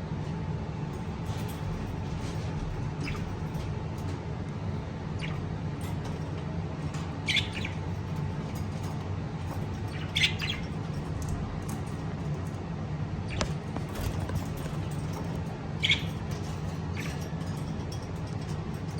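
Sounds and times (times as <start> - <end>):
steady low hum: 0.0 - 18.9
lovebirds chirping: 3.0 - 3.6, 7.1 - 11.2, 13.2 - 17.4.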